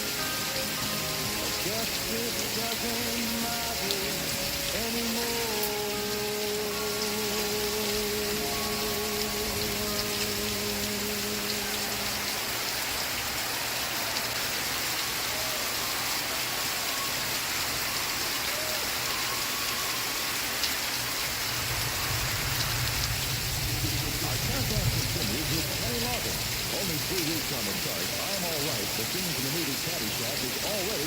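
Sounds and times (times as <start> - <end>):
steady rain: 0.0 - 31.0
faint song from television: 0.1 - 12.4.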